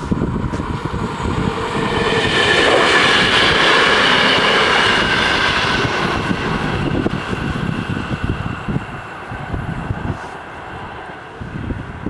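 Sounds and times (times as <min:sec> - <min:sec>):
electric train running: 0:00.0 - 0:12.0
high whine: 0:00.0 - 0:12.0.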